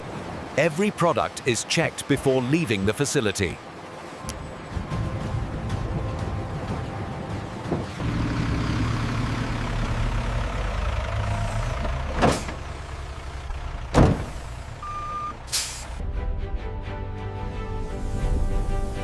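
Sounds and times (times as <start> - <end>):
short beep: 14.8 - 15.4
hiss of air: 15.5 - 16.0.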